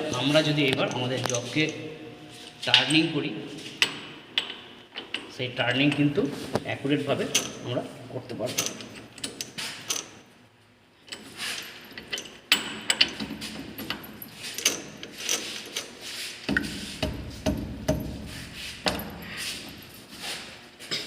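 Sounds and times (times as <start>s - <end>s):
spanner clicking on metal bolts: 3.8s - 6.2s, 11.0s - 19.4s.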